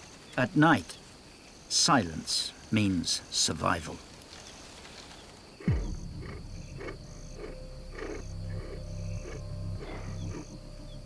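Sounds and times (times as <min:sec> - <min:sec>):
leopard grunting: 0:05.6 - 0:11.0.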